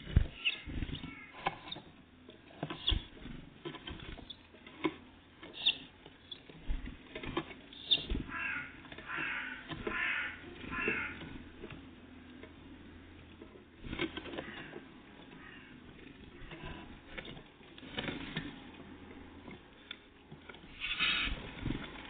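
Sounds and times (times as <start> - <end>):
harsh rasping bird calls: 0.4 - 1.9, 5.5 - 6.5, 7.8 - 11.5, 14.4 - 15.8, 20.8 - 21.4.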